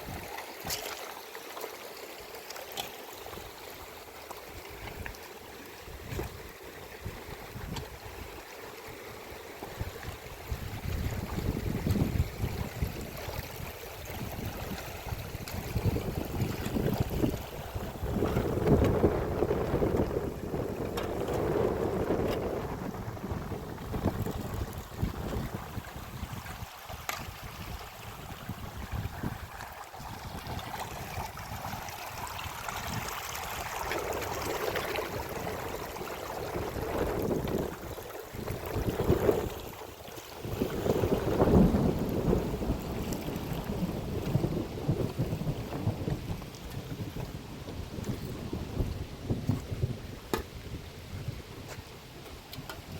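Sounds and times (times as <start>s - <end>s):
running water: 0.0s - 52.9s
rushing floodwater: 0.0s - 52.9s
wind gusting against microphone: 9.7s - 39.8s, 40.4s - 52.3s
heavy rain: 40.7s - 43.0s, 43.6s - 46.3s.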